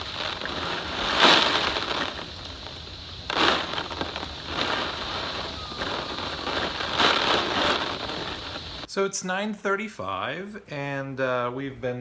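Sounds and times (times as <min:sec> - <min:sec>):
heavy rain pouring: 0:00.0 - 0:08.9.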